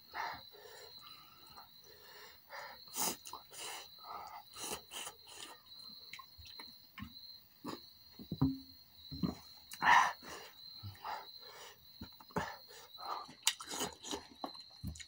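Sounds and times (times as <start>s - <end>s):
wet chewing and lip-smacking: 4.2s - 7.8s, 13.0s - 15.0s.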